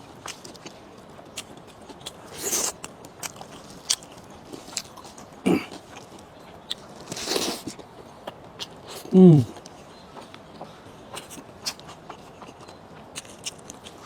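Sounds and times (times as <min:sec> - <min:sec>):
person chewing and biting food: 0:00.2 - 0:10.3, 0:11.1 - 0:14.0.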